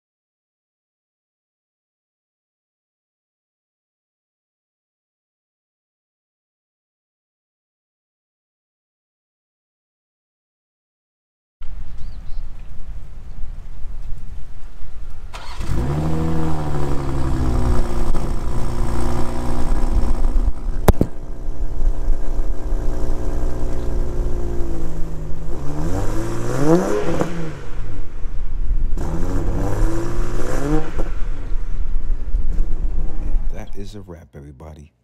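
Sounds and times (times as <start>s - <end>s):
car engine idling and revving: 15.1s - 33.6s.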